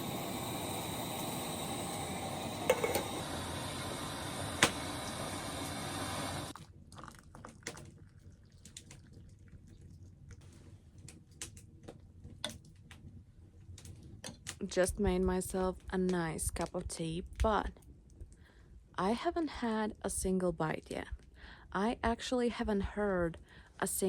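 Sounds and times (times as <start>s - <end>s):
camping stove hissing: 0.0s - 6.6s
small liquid sounds and taps: 6.6s - 14.7s.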